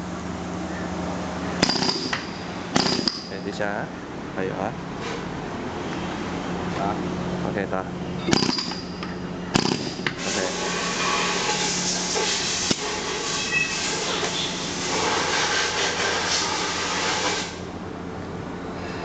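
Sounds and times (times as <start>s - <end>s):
steady hum: 0.0s - 19.0s
pneumatic concrete breaker rattling: 1.6s - 3.5s, 8.2s - 17.6s.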